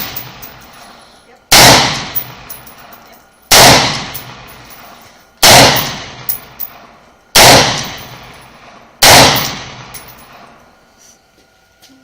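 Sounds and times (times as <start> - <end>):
rifle shots with echo: 0.0 - 0.7, 1.5 - 4.8, 5.4 - 10.4.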